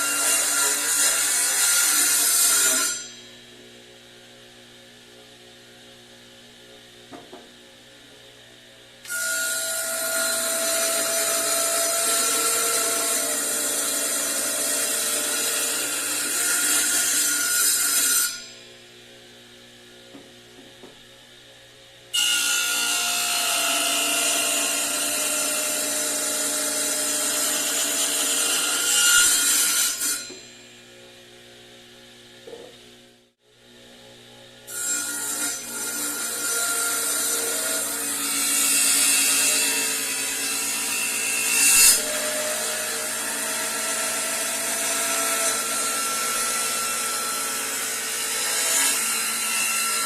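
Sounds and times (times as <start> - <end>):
power tool cutting wood: 0.0 - 3.1, 9.1 - 18.5, 22.1 - 30.5, 34.7 - 50.0.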